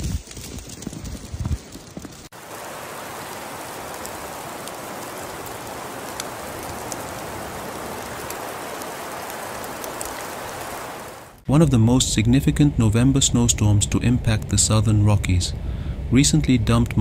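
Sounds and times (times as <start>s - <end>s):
rain hiss: 2.3s - 11.4s.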